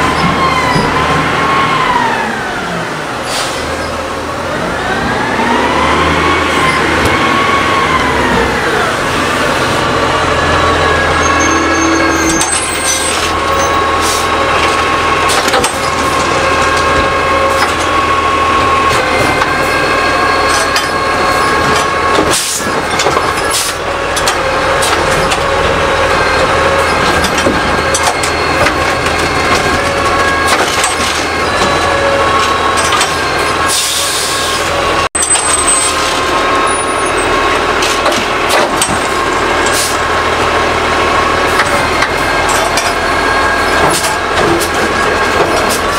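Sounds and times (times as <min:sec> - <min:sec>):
truck engine and hydraulic whine: 0:00.0 - 0:45.9
clanks and knocks: 0:20.4 - 0:33.7, 0:37.8 - 0:39.9, 0:41.5 - 0:45.9.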